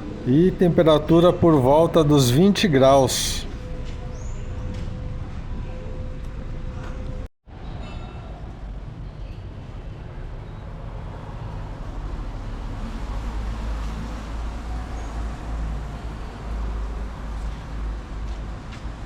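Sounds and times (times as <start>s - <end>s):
traffic rumble: 0.0s - 3.8s.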